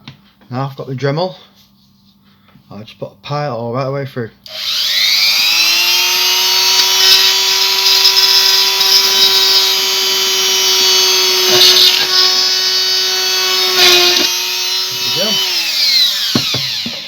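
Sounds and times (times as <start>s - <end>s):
drill bit grinding plastic: 4.5s - 17.0s
rotary tool whining: 4.5s - 17.0s.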